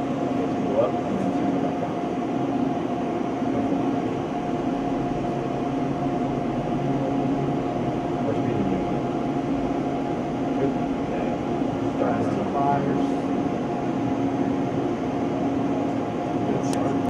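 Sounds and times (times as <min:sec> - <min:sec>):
jet engine running steadily: 0:00.0 - 0:17.0.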